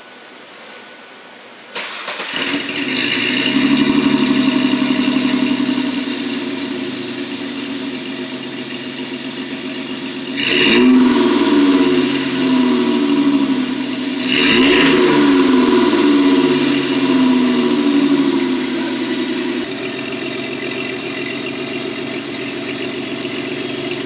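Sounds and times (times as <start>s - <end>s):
car engine starting and idling: 1.8s - 24.0s
engine revving: 1.8s - 24.0s.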